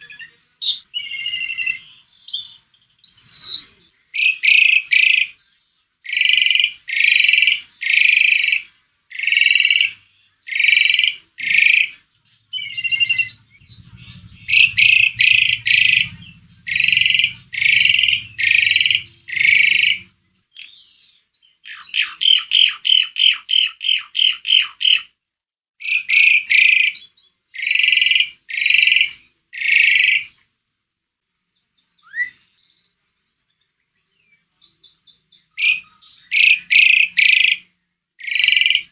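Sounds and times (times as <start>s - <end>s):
starling harsh calls: 3.1s - 5.4s, 6.1s - 21.0s, 21.6s - 25.1s, 25.8s - 30.4s, 35.6s - 38.9s
rattling bird notes: 12.3s - 20.2s.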